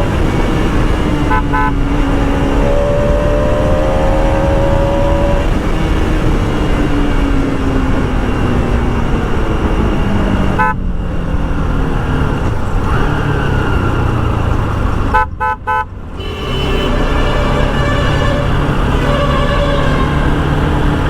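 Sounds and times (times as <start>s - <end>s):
motorcycle engine running: 0.0s - 21.0s
road and wind noise: 0.0s - 21.0s
horn beeps: 1.2s - 5.4s, 10.5s - 10.9s, 15.1s - 21.0s.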